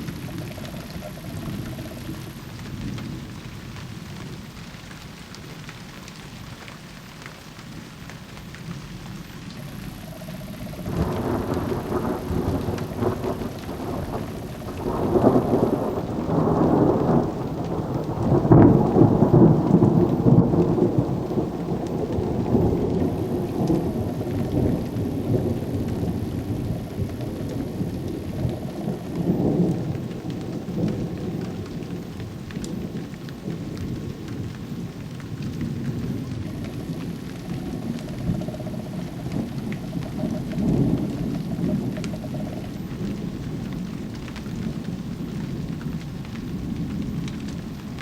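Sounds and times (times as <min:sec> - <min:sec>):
thunder rumbling: 0:00.0 - 0:05.7, 0:06.8 - 0:48.0
rain falling: 0:00.0 - 0:48.0.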